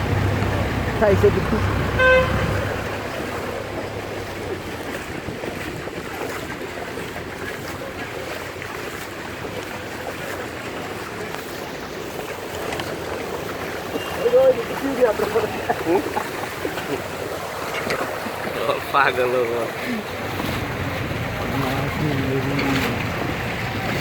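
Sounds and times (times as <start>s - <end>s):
wind on microphone: 0.0s - 18.6s
vehicle moving through floodwater: 0.0s - 24.0s.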